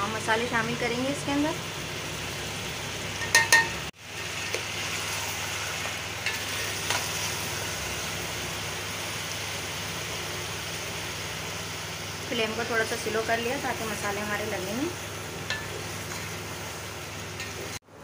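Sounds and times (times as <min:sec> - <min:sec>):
chicken sizzling in hot oil: 0:00.0 - 0:17.9
steel plate clinking on pot: 0:03.2 - 0:03.8.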